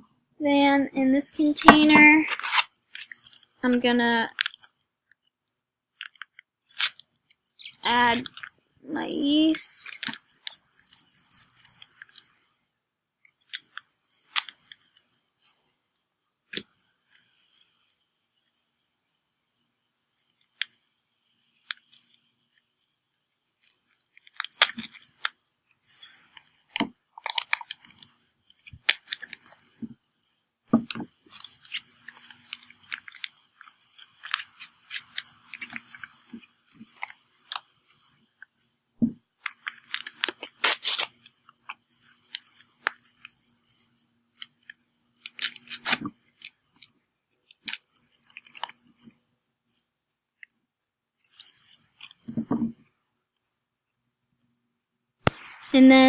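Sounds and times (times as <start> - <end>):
packet crinkling and rustling: 1.4 - 3.6, 25.9 - 30.0, 30.8 - 37.7, 39.4 - 43.3, 45.2 - 46.5
sharp clicks and taps: 55.2 - 55.6.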